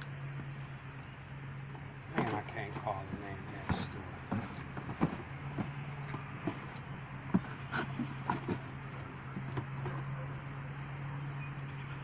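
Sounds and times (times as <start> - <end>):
steady low hum: 0.0 - 12.0
cardboard box handled and opened: 2.2 - 10.5.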